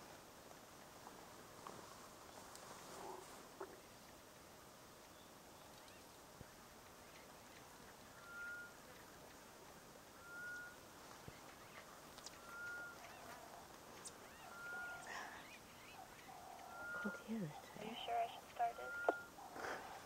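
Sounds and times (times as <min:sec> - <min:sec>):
faint bird chirps: 0:05.1 - 0:09.4, 0:10.1 - 0:20.0.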